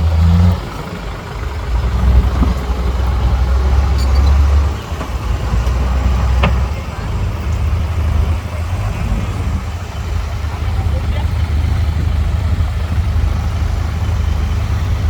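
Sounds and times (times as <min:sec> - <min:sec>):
heavy diesel engine rumbling: 0:00.0 - 0:15.0.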